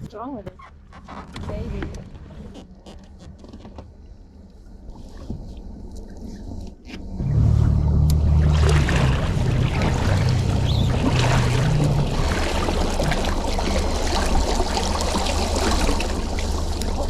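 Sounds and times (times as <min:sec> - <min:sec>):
motorboat engine droning: 0:01.5 - 0:17.0
water rushing along hull: 0:03.9 - 0:17.0.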